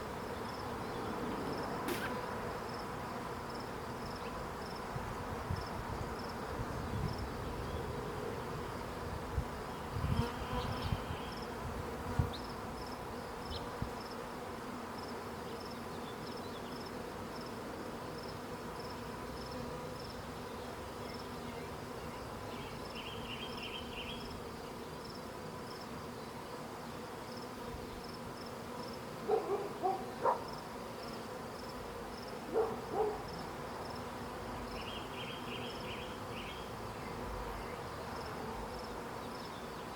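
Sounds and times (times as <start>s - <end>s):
bee swarm buzzing: 0.0s - 39.9s
brief knocks: 1.9s - 2.2s.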